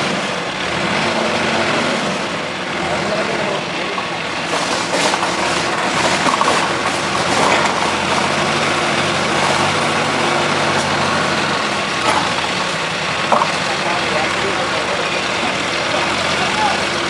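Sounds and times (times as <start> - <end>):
diesel engine running: 0.0 - 17.0
short clatters: 3.9 - 8.3.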